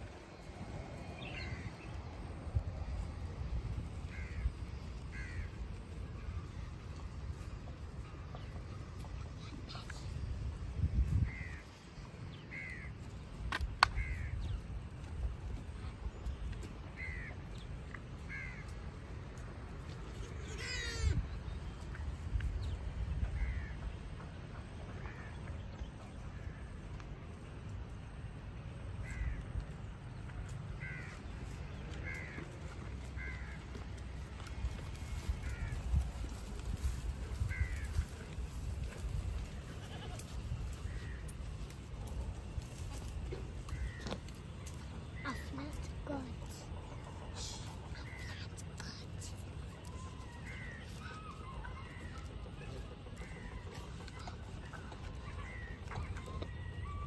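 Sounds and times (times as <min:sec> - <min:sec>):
crow cawing: 0:04.1 - 0:04.5, 0:05.1 - 0:05.5, 0:18.3 - 0:18.7, 0:29.0 - 0:29.4, 0:30.8 - 0:31.1, 0:33.2 - 0:33.6, 0:35.4 - 0:35.8, 0:37.5 - 0:37.9
faint bird calls: 0:42.4 - 0:57.0.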